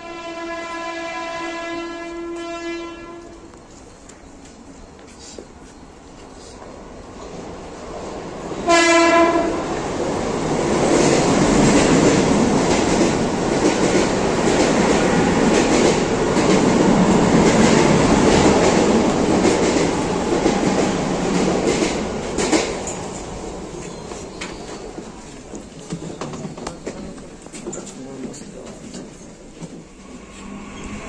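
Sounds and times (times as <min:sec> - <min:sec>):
train horn blast: 0:00.0 - 0:03.5, 0:08.6 - 0:09.7
train wheel rumble: 0:02.0 - 0:31.0.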